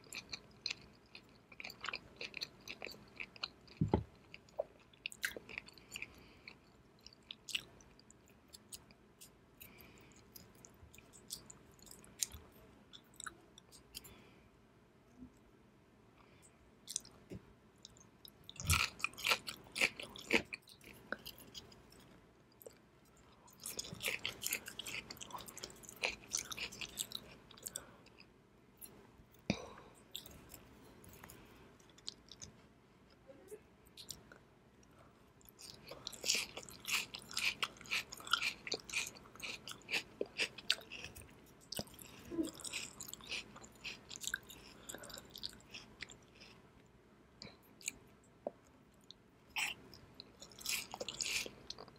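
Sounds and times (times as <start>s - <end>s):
wet chewing with clicks: 35.4s - 46.6s.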